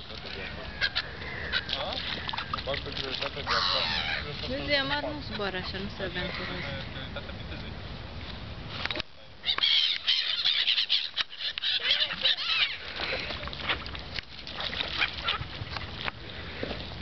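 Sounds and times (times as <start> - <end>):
seagulls squawking: 0.2 - 2.6, 3.2 - 7.6, 9.4 - 13.5, 14.9 - 15.5.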